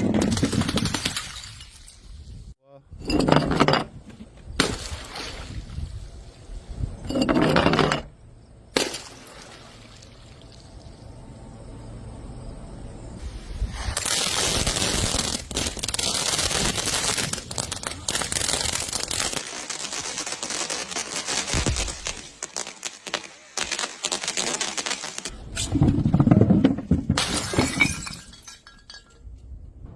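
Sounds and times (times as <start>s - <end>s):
glass bottles breaking: 0.1s - 2.1s, 27.1s - 29.2s.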